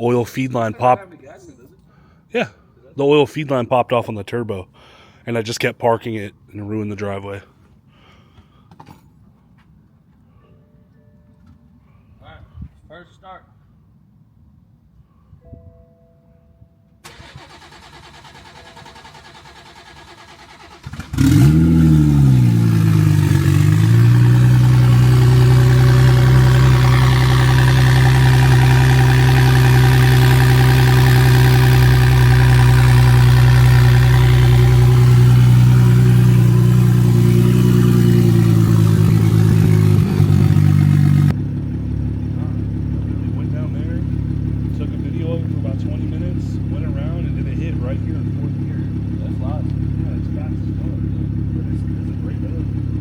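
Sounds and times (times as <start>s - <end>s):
car engine cranking and starting: 17.0s - 53.0s
engine fast idle: 17.0s - 53.0s.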